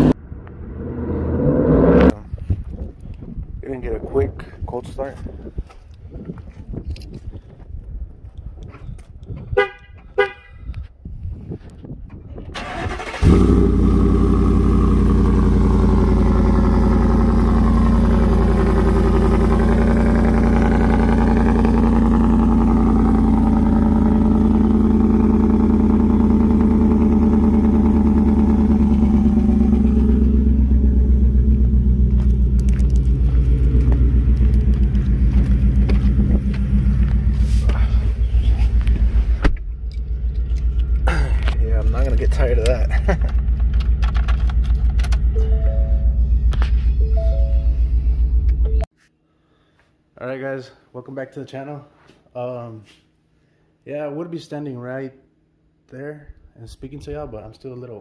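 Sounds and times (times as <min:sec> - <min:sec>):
engine cranking: 0:12.6 - 0:13.6, 0:39.8 - 0:45.4
engine idling: 0:12.6 - 0:46.6
short beeps and clicks: 0:45.3 - 0:48.9.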